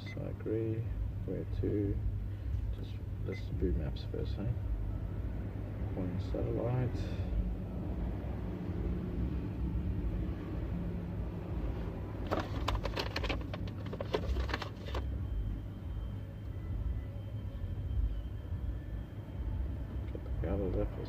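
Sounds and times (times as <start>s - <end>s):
car cabin rumble: 12.1s - 15.6s.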